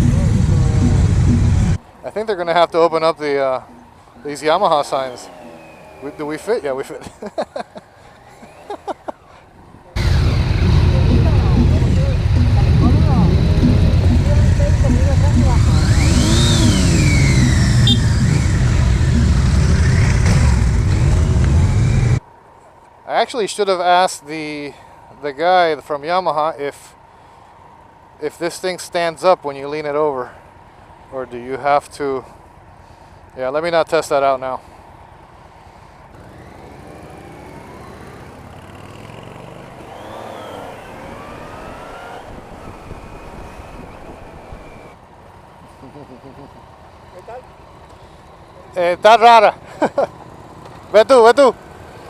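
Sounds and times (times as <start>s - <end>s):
motorcycle engine accelerating: 0.0s - 1.8s, 4.9s - 6.7s, 9.9s - 22.2s, 36.1s - 45.0s
road rumble: 0.0s - 52.0s
wind: 0.0s - 52.0s.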